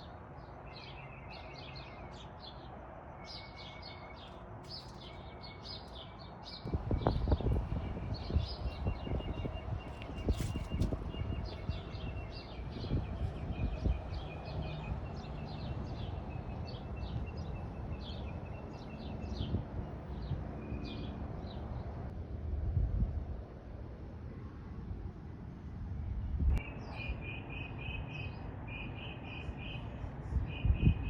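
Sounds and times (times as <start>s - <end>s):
small birds chirping: 0.4s - 21.8s
steady low rumble: 6.7s - 14.5s.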